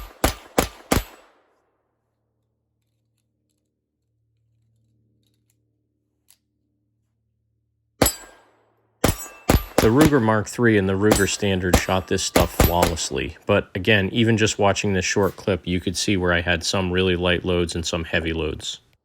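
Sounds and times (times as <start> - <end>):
pistol shots: 0.0 - 1.6, 8.0 - 13.2.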